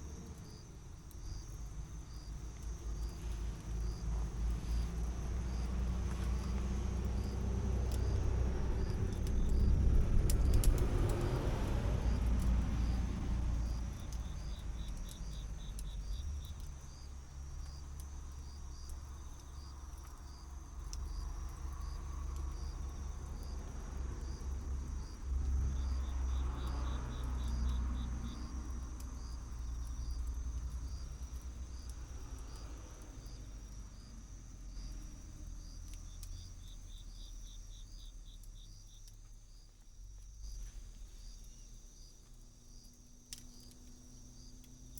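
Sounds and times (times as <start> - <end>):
low rumble: 0.0 - 17.8
insect trills: 0.0 - 44.9
insects chirping: 0.0 - 44.9.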